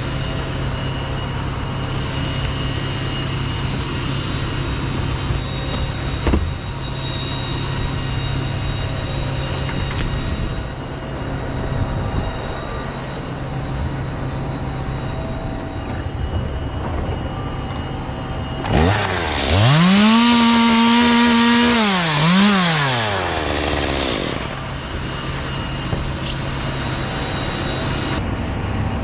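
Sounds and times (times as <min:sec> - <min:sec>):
chainsaw revving: 0:18.6 - 0:25.5.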